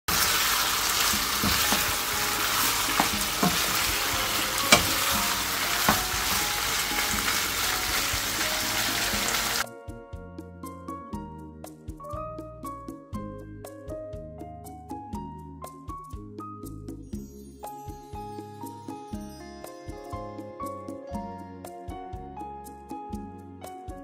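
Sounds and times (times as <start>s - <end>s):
spatulas knocking against pan: 0.1s - 8.1s
meat sizzling in a frying pan: 0.1s - 9.6s
soft piano-like music: 0.1s - 24.0s.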